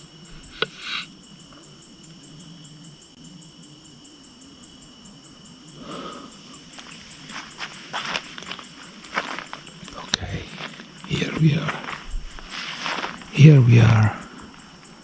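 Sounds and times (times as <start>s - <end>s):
crickets chirping: 0.0s - 15.0s
short rustle: 6.8s - 14.2s.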